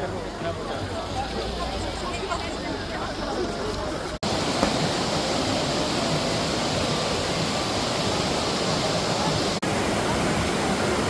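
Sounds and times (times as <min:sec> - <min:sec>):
waterfall rushing: 0:01.0 - 0:11.0.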